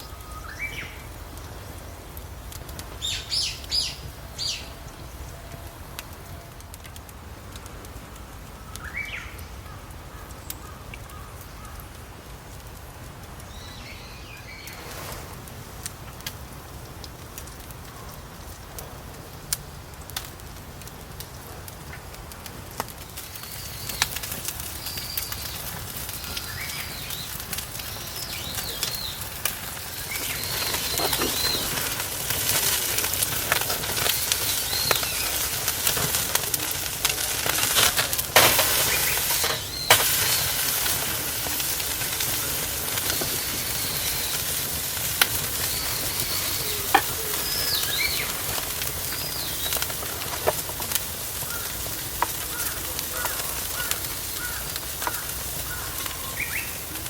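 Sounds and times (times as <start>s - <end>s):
hiss of grilling meat: 0.0s - 57.0s
wood fire crackling and popping: 0.0s - 57.0s
birds calling: 3.0s - 5.4s, 23.0s - 50.6s, 51.4s - 57.0s.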